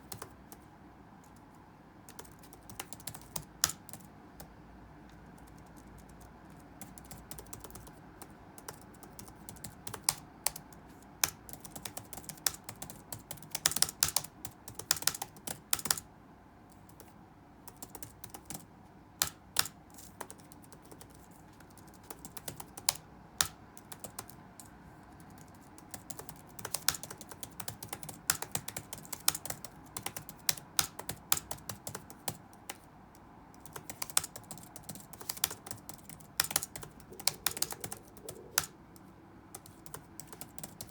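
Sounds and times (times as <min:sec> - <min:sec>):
typing on computer keyboard: 0:00.0 - 0:16.1, 0:16.7 - 0:40.9
low background hum: 0:00.0 - 0:40.9.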